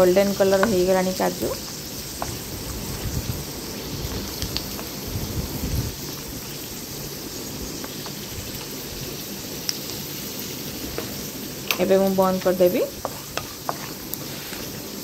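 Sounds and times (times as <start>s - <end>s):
cashews sizzling in hot oil: 0.0s - 15.0s
wooden spatula stirring: 10.9s - 15.0s.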